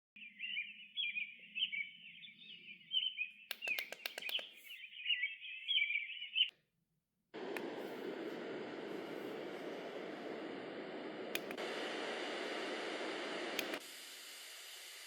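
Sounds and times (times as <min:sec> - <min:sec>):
small birds chirping: 0:00.2 - 0:06.5
sharp clicks: 0:03.5 - 0:04.6, 0:11.0 - 0:11.8, 0:13.0 - 0:13.9.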